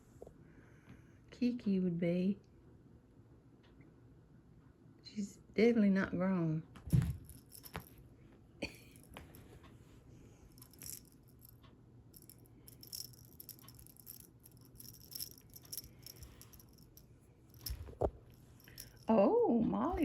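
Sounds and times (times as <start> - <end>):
cat toy rattling and jingling: 6.9 - 8.0, 10.6 - 11.6, 12.2 - 19.2.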